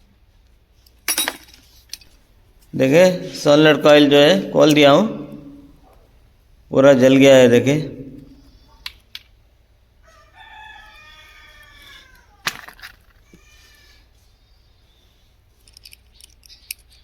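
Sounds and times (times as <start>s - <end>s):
small metal parts clinking: 0.9s - 2.2s, 12.4s - 13.2s, 15.6s - 17.0s
rooster crowing: 10.0s - 12.5s.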